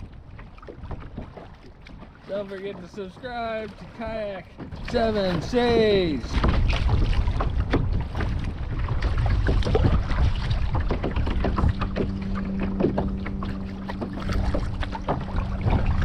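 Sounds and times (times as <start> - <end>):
wind rumbling on microphone: 0.0 - 2.3, 3.7 - 16.0
paddle splashing water: 0.0 - 16.0
steady low hum: 9.2 - 16.0.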